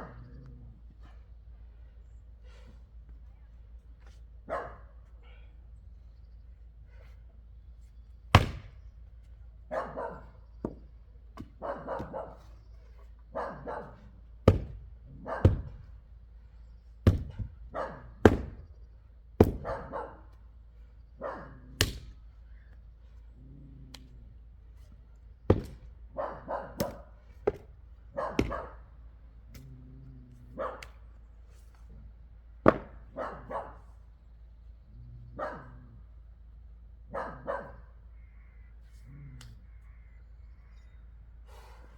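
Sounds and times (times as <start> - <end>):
dog barking: 4.4 - 5.0, 9.7 - 10.4, 11.4 - 12.5, 13.3 - 14.1, 15.2 - 15.8, 17.7 - 18.2, 19.6 - 20.3, 21.2 - 21.8, 26.1 - 27.1, 28.1 - 28.9, 30.5 - 31.0, 33.1 - 33.9, 35.3 - 36.0, 37.1 - 38.0
wood being chopped: 8.3 - 9.0, 10.6 - 12.3, 14.4 - 16.0, 17.0 - 18.8, 19.4 - 20.0, 21.8 - 22.3, 25.5 - 26.0, 26.8 - 28.7, 32.6 - 33.2.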